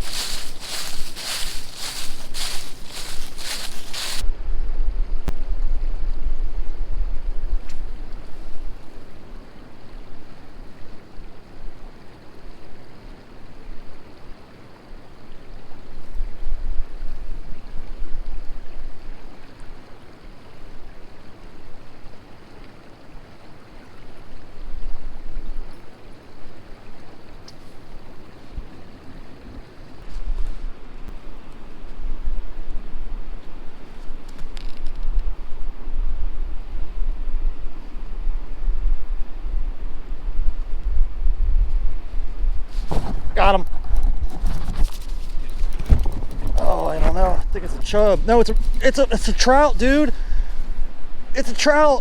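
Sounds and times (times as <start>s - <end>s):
creek water rushing: 0.0s - 4.2s, 7.8s - 30.0s, 42.7s - 52.0s
wind buffeting microphone: 31.8s - 51.4s.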